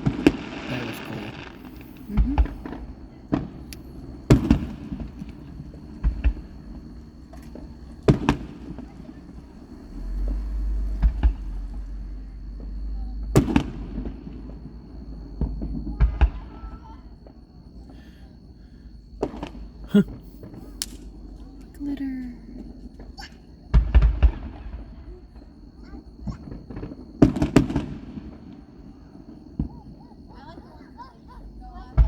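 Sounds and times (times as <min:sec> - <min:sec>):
fireworks bangs with echo: 0:00.0 - 0:11.9, 0:12.6 - 0:17.8, 0:23.7 - 0:25.5, 0:26.2 - 0:30.2.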